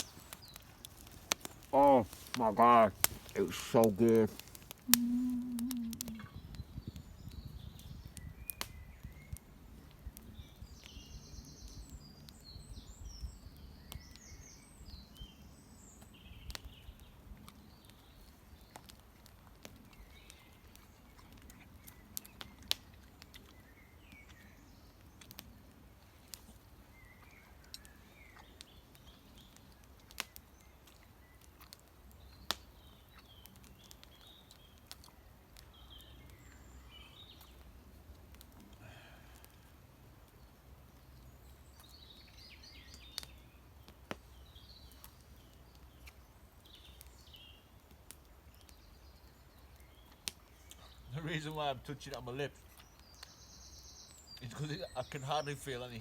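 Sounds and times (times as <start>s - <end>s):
birds singing and chirping: 0.0s - 18.9s, 48.5s - 56.0s.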